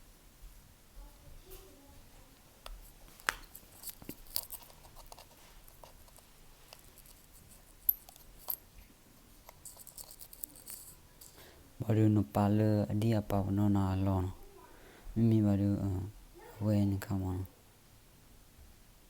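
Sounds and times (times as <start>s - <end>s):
hand tools clicking and tapping: 2.6s - 11.5s.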